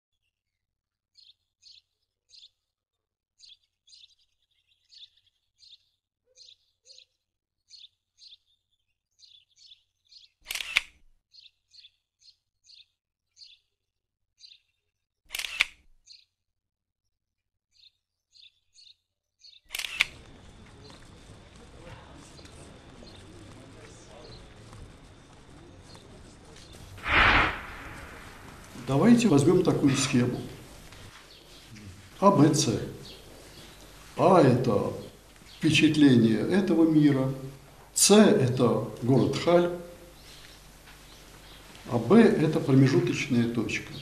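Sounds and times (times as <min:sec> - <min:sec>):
small bird chirping: 0:01.2 - 0:02.6, 0:03.4 - 0:10.4, 0:11.3 - 0:13.6, 0:16.1 - 0:16.4
loud sharp clicks: 0:10.5 - 0:11.0, 0:15.3 - 0:15.8, 0:19.7 - 0:20.1
steady background hiss: 0:26.8 - 0:44.0.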